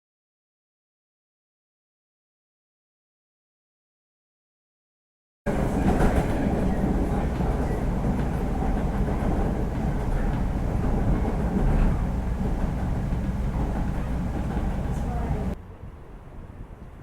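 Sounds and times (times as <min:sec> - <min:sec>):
moving vehicle rumble: 0:05.5 - 0:17.0.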